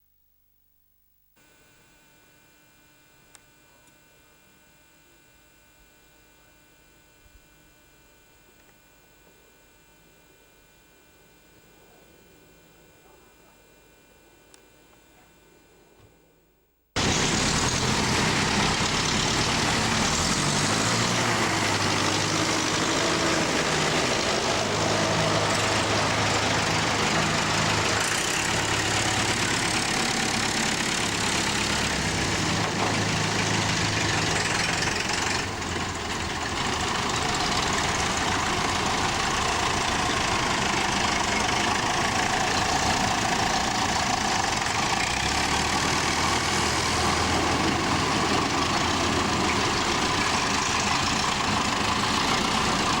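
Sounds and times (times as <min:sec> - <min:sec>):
diesel tractor engine running: 0:17.0 - 0:53.0.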